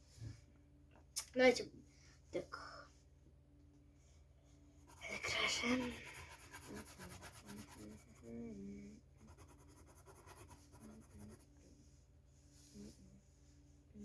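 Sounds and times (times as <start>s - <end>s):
pencil scratching on paper: 4.8s - 8.4s, 9.2s - 11.9s.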